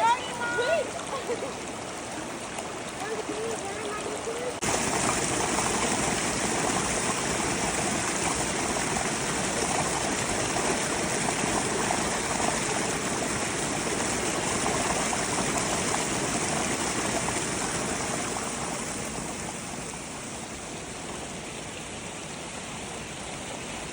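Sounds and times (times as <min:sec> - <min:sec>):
stream water rushing: 0:00.0 - 0:23.9.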